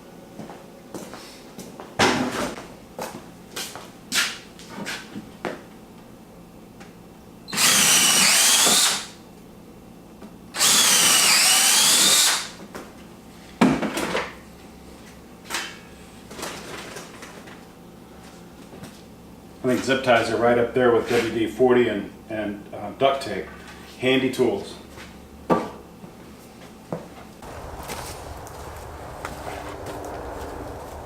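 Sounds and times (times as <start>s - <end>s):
power drill running: 7.5s - 9.1s, 10.6s - 12.6s.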